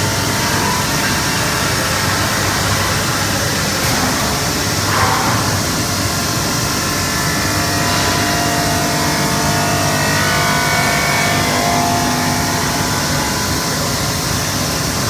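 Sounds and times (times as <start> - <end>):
machine humming with motor whines: 0.0 - 15.0.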